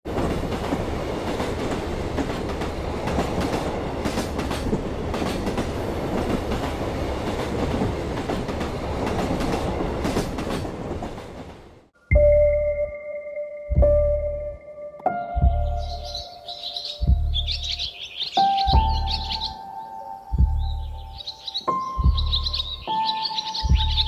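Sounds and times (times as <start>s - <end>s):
wheels clacking over rail joints: 0.1s - 11.9s
train rumbling on rails: 0.1s - 12.0s, 15.4s - 24.0s.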